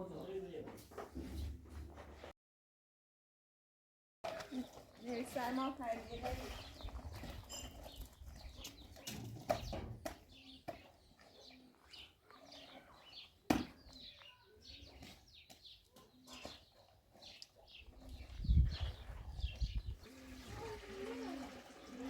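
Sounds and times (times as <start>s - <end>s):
small birds chirping: 4.3s - 20.1s.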